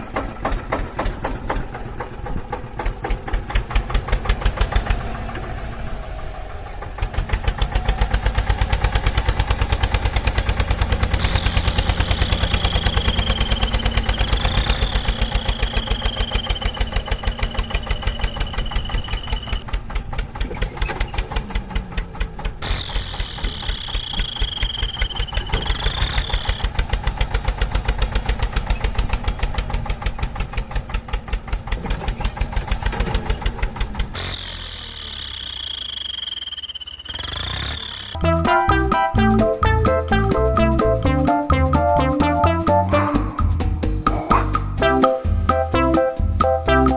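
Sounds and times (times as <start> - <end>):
tractor engine running: 0.0 - 46.9
high whistling tone: 11.2 - 19.6, 22.8 - 26.6, 35.0 - 46.9.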